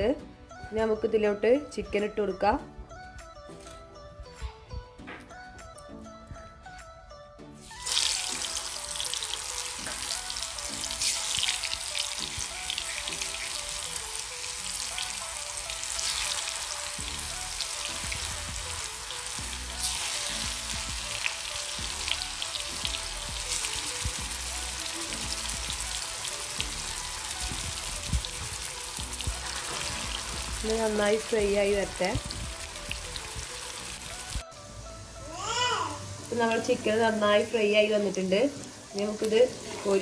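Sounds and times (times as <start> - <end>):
background music: 0.0 - 40.0
chicken sizzling in hot oil: 7.6 - 34.4, 36.2 - 40.0.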